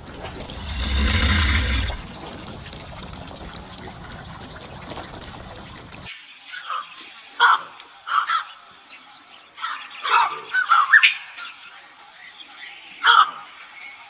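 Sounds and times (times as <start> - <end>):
running water rushing: 0.0 - 6.1.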